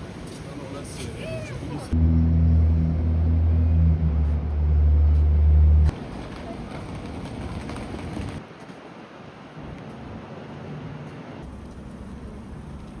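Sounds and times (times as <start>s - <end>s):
distant traffic: 0.0s - 13.0s
loud deep low hum: 2.0s - 5.9s.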